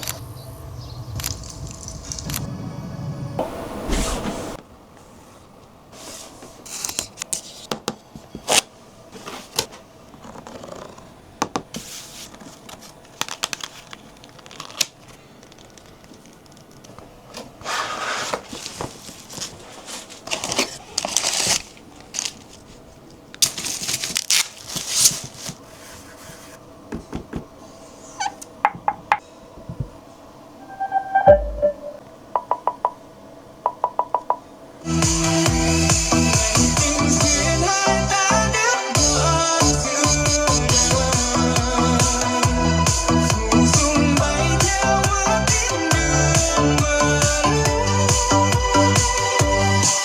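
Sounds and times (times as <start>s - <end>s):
cardboard and plastic rustling: 6.0s - 27.4s
wrapping tearing: 12.2s - 16.8s, 17.7s - 25.7s
short electronic tones: 30.6s - 33.0s
sharp clicks and taps: 31.3s - 33.0s, 33.7s - 34.4s.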